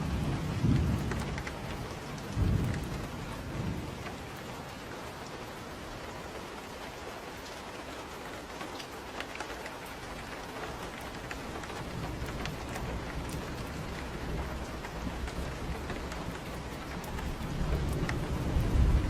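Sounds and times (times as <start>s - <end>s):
distant thunder rumble: 0.0s - 5.2s, 10.9s - 19.0s
rain pattering: 0.0s - 19.0s.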